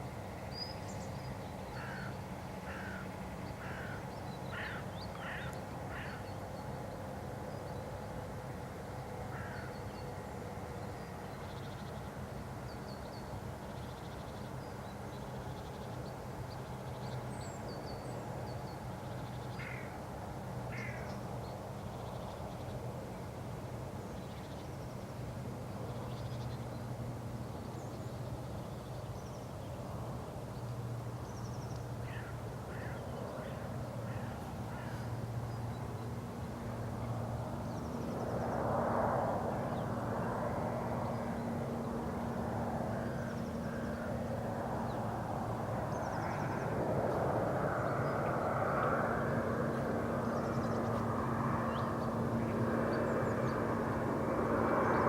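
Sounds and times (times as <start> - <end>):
small birds calling: 1.7 - 6.3
crows cawing: 1.8 - 6.2, 9.3 - 9.7, 19.6 - 19.9, 20.7 - 21.1, 32.1 - 35.1
aircraft engine drone: 13.3 - 55.0.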